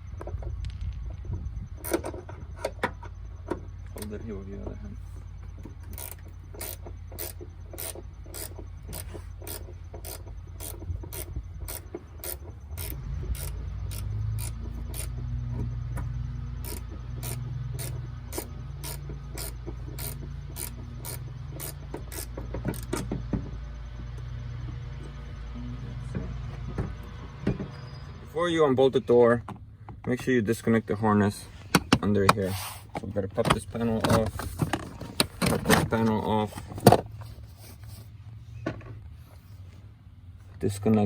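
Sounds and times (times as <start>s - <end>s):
low hum: 0.0s - 29.9s
ratchet wrench clicking: 5.8s - 15.2s, 16.6s - 23.0s.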